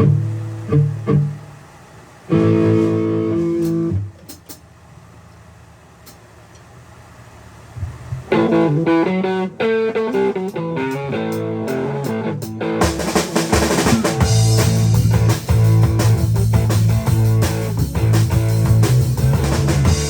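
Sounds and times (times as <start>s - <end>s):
bass guitar: 0.0s - 1.6s, 2.3s - 4.6s, 7.8s - 20.0s
guitar playing chords: 0.0s - 4.3s, 8.2s - 20.0s
drum kit: 2.3s - 4.7s, 7.8s - 20.0s.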